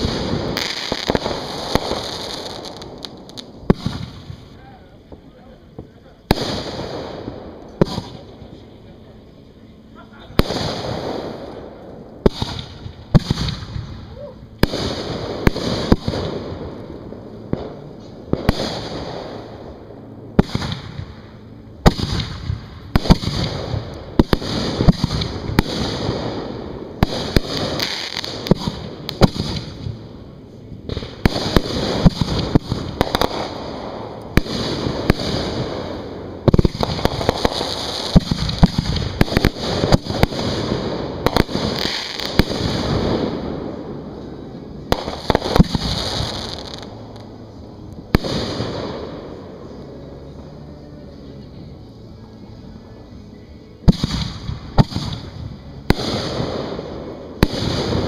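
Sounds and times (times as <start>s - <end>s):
fireworks firing and bursting: 0.0s - 58.0s.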